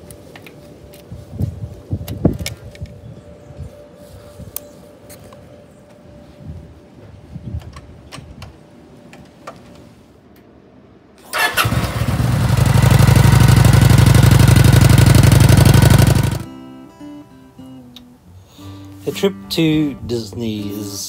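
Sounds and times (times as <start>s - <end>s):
motorcycle engine starting and idling: 11.2s - 16.5s.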